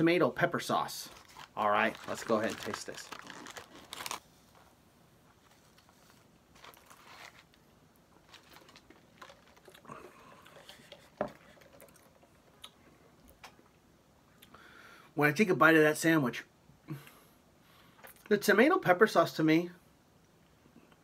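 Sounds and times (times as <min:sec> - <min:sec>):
paper wrapper crinkling: 0:01.0 - 0:04.6, 0:05.3 - 0:12.2
person chewing crispy sandwich: 0:01.2 - 0:04.2, 0:08.2 - 0:12.8.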